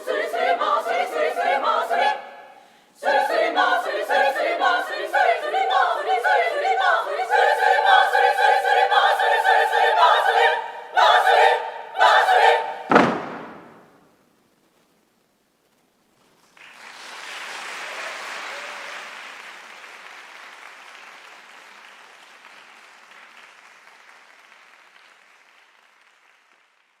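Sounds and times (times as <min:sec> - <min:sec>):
audience applause: 0:16.5 - 0:27.0.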